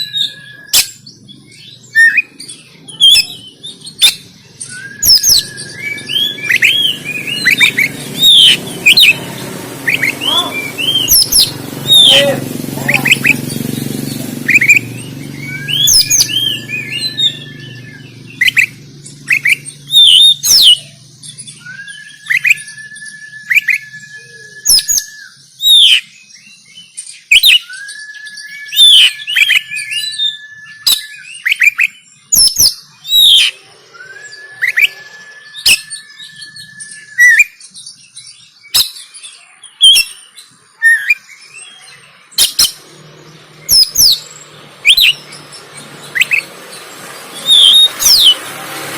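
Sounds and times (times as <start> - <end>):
bird singing sharp chirps: 0.0 - 48.9
held whistle-like tone: 21.6 - 25.4, 33.6 - 37.6.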